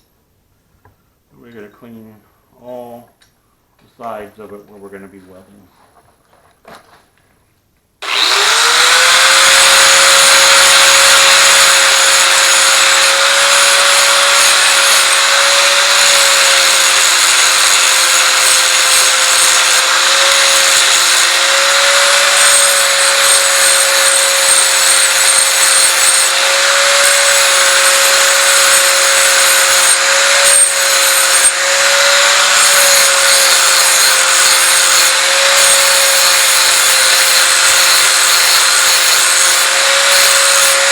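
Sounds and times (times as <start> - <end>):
angle grinder grinding steel: 8.0 - 40.9.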